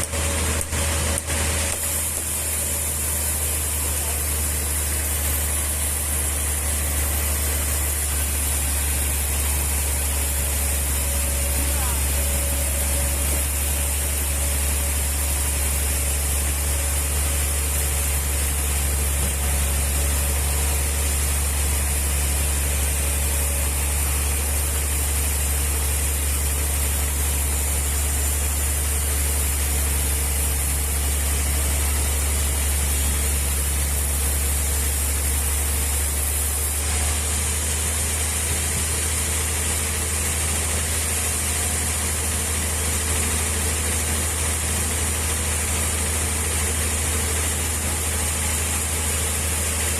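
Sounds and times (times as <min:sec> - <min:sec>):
machinery low hum: 0:00.0 - 0:49.9.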